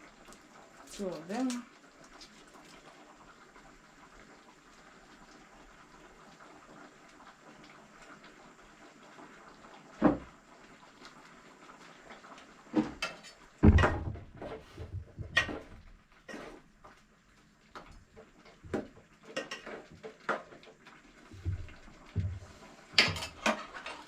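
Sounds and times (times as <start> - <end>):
household knocks and clatters: 12.7 - 15.9, 21.4 - 24.0.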